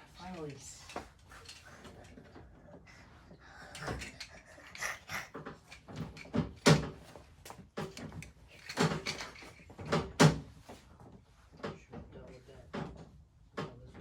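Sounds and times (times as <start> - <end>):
knocks and clunks of hard parts: 3.8 - 14.0.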